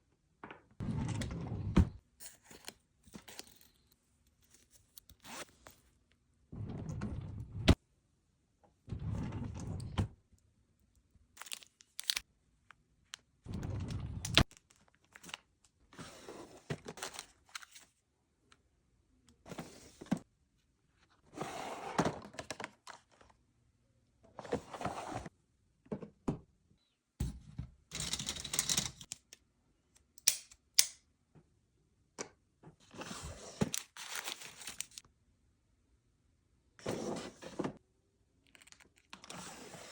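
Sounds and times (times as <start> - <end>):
packaging rustling and crinkling: 11.4 - 12.2, 33.7 - 35.0.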